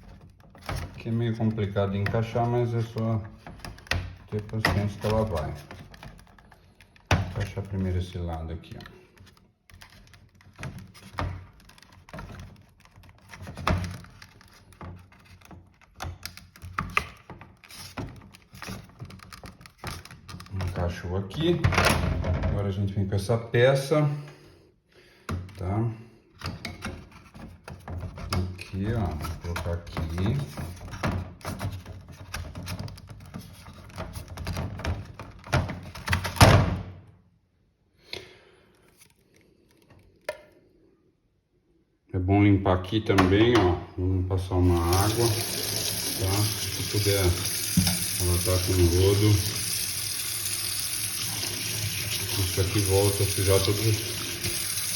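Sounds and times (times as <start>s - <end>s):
plastic parts clicking and knocking: 0.0s - 20.8s, 26.3s - 36.8s.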